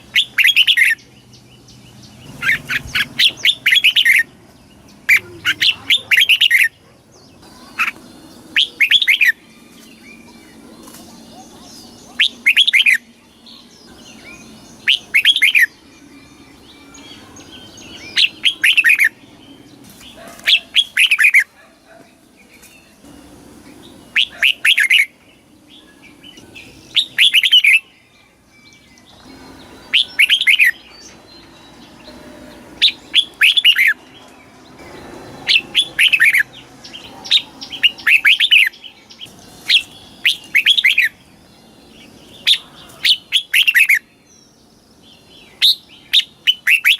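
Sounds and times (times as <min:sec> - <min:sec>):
bird singing whistled phrases: 0:11.7 - 0:19.2, 0:26.9 - 0:31.1, 0:32.8 - 0:34.0, 0:39.7 - 0:41.2, 0:42.4 - 0:44.1, 0:45.5 - 0:46.9.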